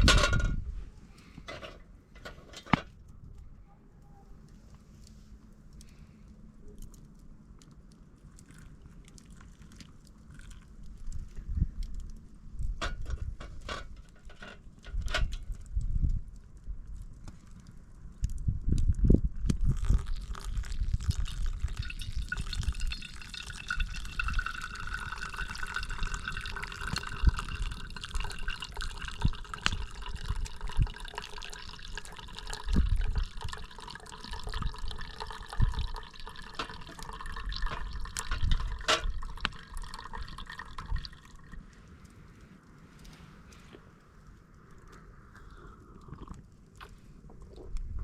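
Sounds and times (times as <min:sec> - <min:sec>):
liquid flowing: 0:19.7 - 0:41.8.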